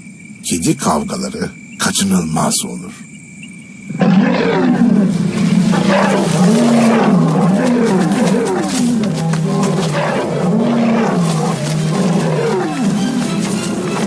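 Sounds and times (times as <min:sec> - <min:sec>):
cats yowling and screeching: 0:04.0 - 0:14.0.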